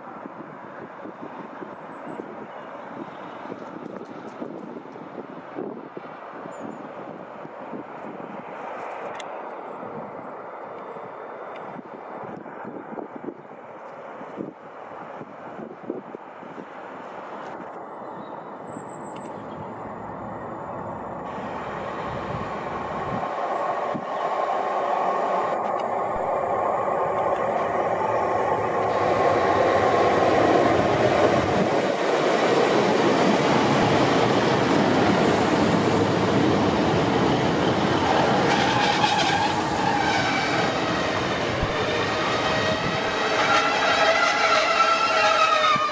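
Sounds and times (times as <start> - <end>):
diesel train running past: 13.6 - 45.9.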